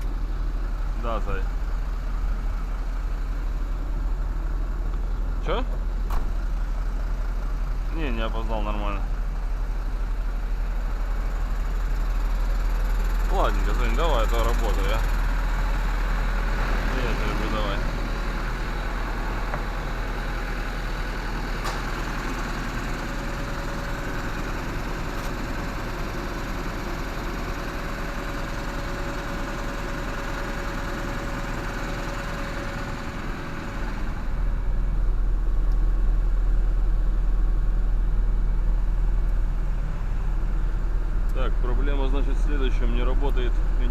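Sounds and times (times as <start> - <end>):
engine idling: 0.0 - 43.9
heavy low rumble: 13.3 - 26.1, 34.0 - 43.9.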